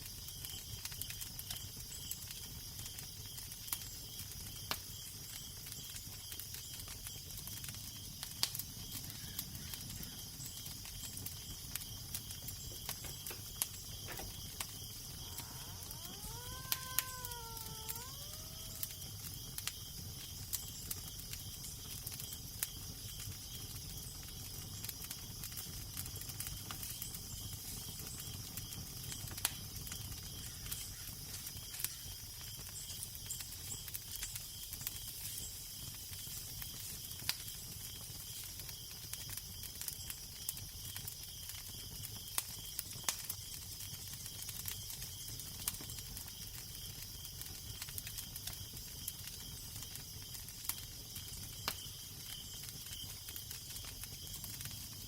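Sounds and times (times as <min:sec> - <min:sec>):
fire crackling and popping: 0:00.0 - 0:55.0.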